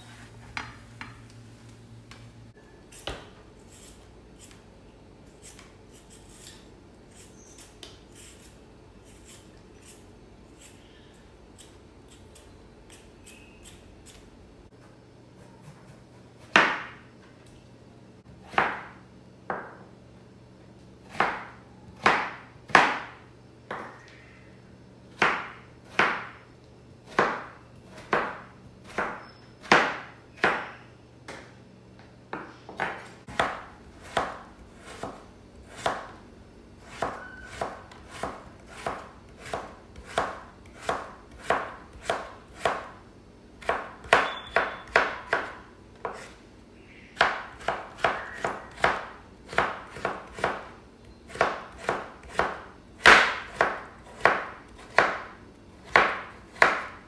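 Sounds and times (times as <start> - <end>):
knife chopping on cutting board: 15.6 - 17.0, 18.4 - 18.9, 21.1 - 24.0, 25.2 - 26.4, 27.1 - 30.8, 32.3 - 36.1, 36.9 - 42.9, 43.6 - 46.4, 47.2 - 50.7, 51.3 - 57.0.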